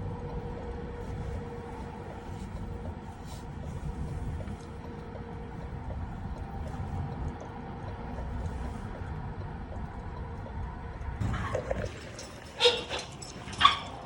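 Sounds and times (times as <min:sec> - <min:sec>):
faint hum tones: 0:00.0 - 0:14.0
light regular ticking: 0:00.0 - 0:14.0.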